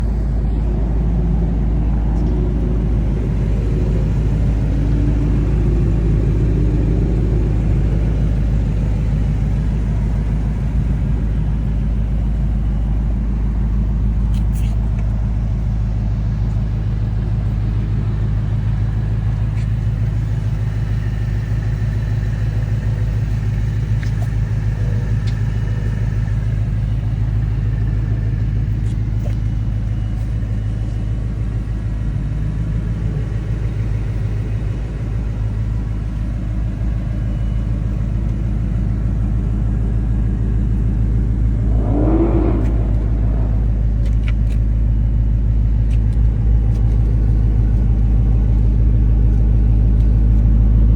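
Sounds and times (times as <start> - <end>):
motor vehicle low rumble: 0.0 - 50.9
short wavering higher sound: 41.4 - 44.5.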